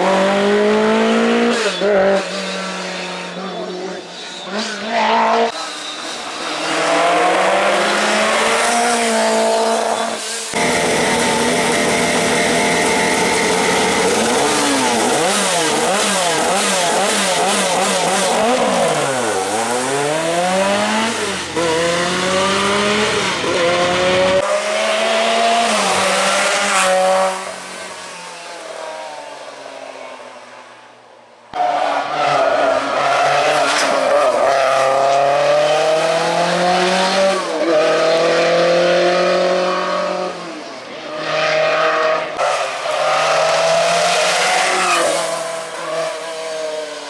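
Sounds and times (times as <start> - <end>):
car engine revving hard: 6.6 - 27.6, 32.4 - 40.6, 41.2 - 47.0.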